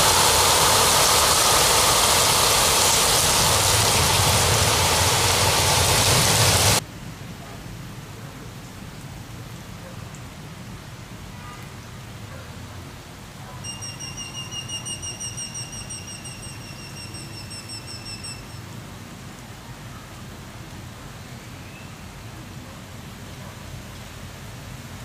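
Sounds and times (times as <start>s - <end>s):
rain falling: 0.0s - 25.0s
high rapidly pulsing trill: 13.6s - 18.6s.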